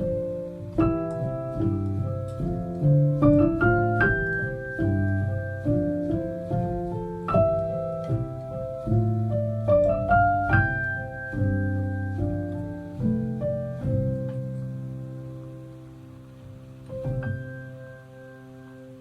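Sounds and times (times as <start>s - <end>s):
slow gentle piano music: 0.0s - 19.0s.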